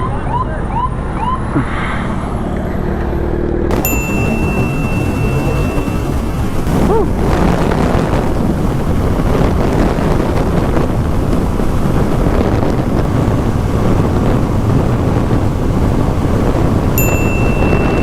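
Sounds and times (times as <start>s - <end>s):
motorcycle engine: 0.0s - 18.0s
road noise: 0.0s - 18.0s
wind rushing over microphone: 0.0s - 18.0s.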